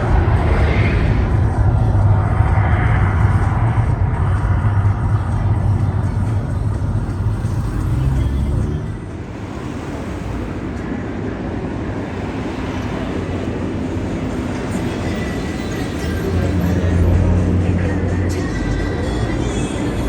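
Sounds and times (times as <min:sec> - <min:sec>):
deep rumbling roar: 0:00.0 - 0:09.1.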